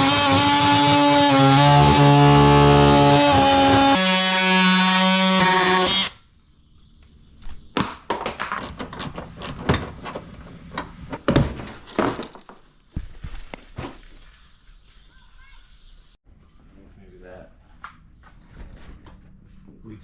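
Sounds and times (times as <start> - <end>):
knocks clicks and thunks: 7.8 - 12.4.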